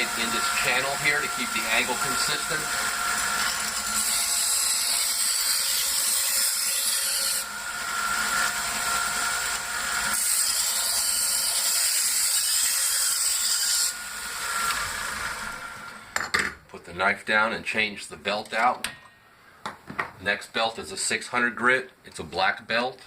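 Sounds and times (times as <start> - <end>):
sharpener motor whine: 0.0 - 6.2, 13.6 - 16.0.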